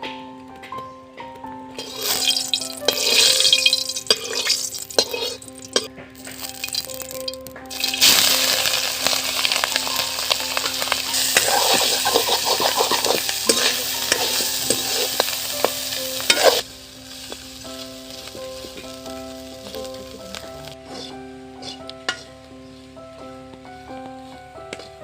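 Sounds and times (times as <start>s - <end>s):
utensil scraping a pan: 1.8s - 16.6s, 20.9s - 22.3s
food sizzling in a pan: 1.8s - 22.3s.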